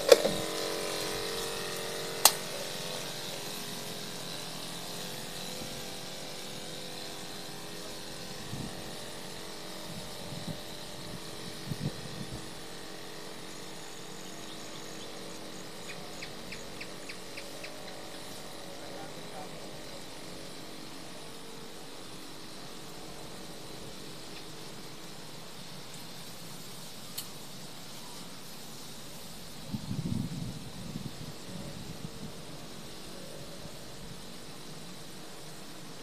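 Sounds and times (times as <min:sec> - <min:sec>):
sharp click: 0:00.0 - 0:00.4, 0:02.2 - 0:02.5, 0:27.1 - 0:27.4
motor humming: 0:00.0 - 0:36.0.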